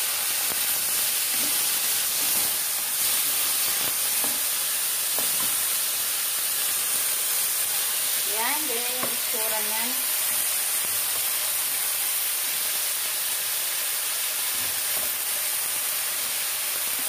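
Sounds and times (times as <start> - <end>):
vegetables sizzling in a wok: 0.0 - 17.0.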